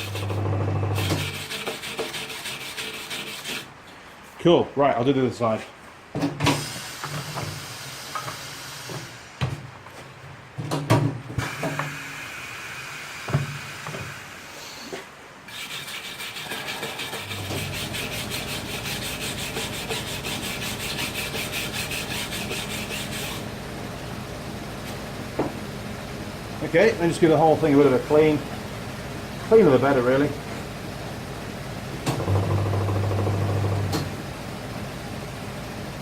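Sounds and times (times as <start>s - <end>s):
wire brush scraping metal: 15.5s - 23.4s.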